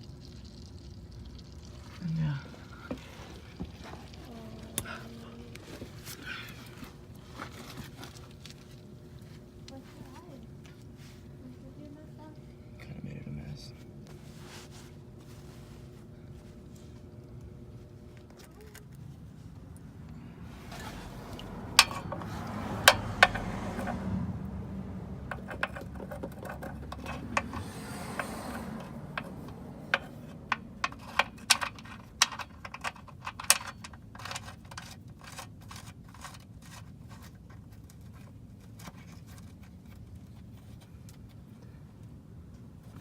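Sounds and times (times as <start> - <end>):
metal tools clinking and scraping: 20.3 - 24.0, 25.3 - 36.4
sharp clicks and knocks: 21.3 - 24.1, 25.2 - 36.8.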